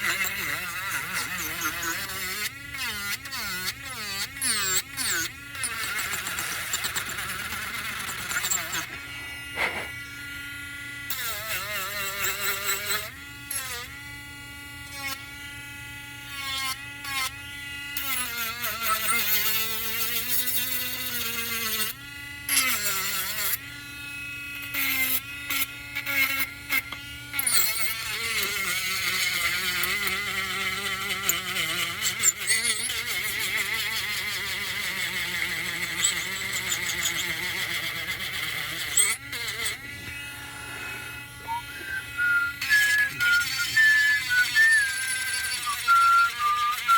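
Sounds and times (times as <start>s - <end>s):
power sander motor whine: 4.2s - 11.5s, 26.5s - 46.9s.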